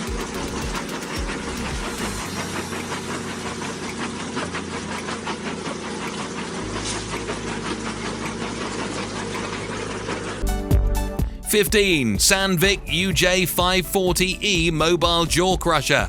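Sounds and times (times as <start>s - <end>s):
rapid knocking rattle: 0.0s - 10.3s
crusher machine drone: 0.0s - 10.8s.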